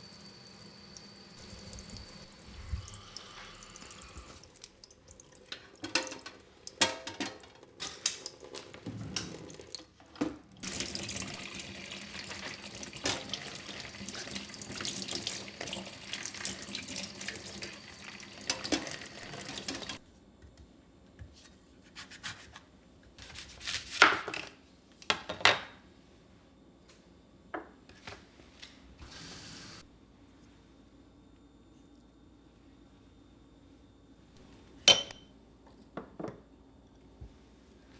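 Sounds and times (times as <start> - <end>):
tap running water into sink: 0.0 - 20.0.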